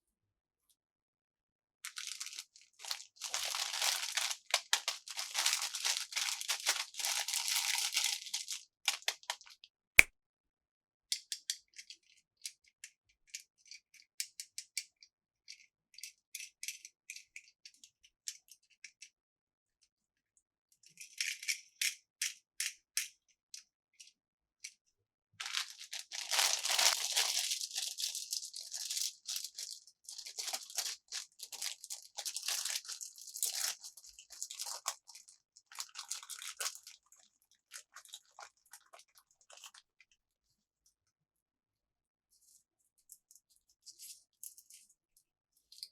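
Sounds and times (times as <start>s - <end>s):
packaging crinkling and rustling: 1.9s - 9.2s, 25.4s - 39.8s.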